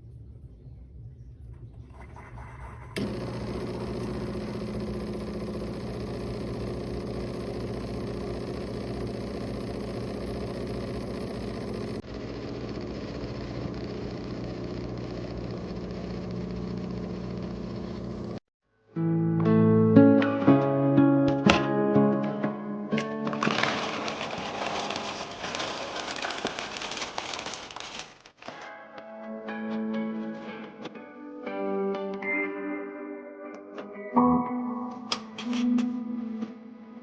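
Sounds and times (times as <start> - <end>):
coffee maker mechanical hum: 1.8 - 18.4.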